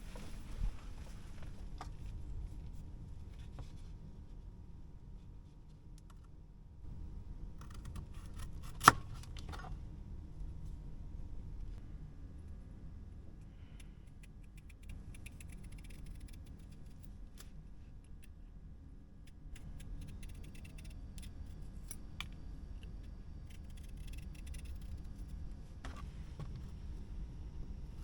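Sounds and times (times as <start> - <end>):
steady low rumble: 9.7 - 28.0.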